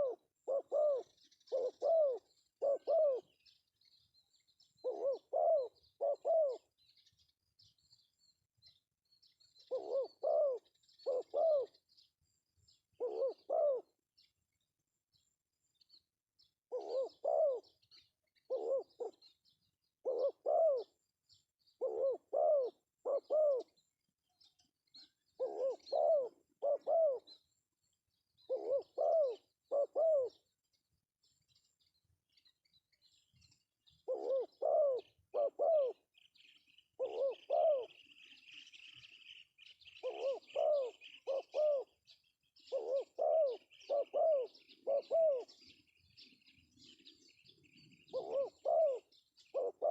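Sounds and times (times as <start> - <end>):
dove cooing: 0.0 - 3.5, 4.8 - 6.8, 9.7 - 11.8, 12.9 - 14.0, 16.7 - 19.3, 20.0 - 21.0, 21.8 - 23.8, 25.3 - 27.4, 28.4 - 30.5, 33.8 - 36.2, 37.0 - 38.9, 40.0 - 49.9
small birds chirping: 0.0 - 49.9.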